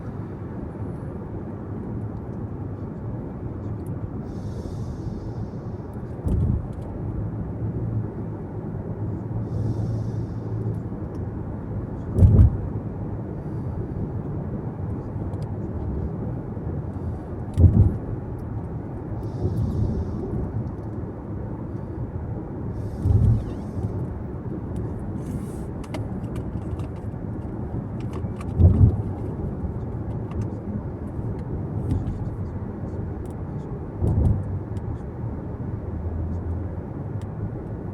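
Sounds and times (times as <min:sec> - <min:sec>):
tyres and engine rumble in car: 0:00.0 - 0:37.9
short low thump: 0:12.2 - 0:12.6, 0:17.6 - 0:18.0.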